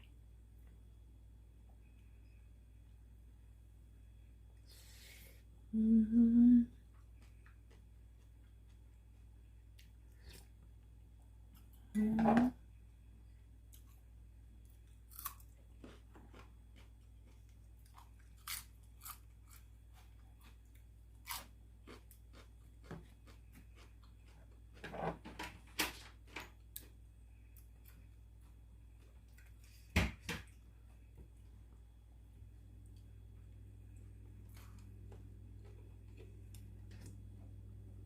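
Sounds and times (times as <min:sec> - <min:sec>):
person chewing crunchy food: 0:14.7 - 0:24.8, 0:34.4 - 0:37.1.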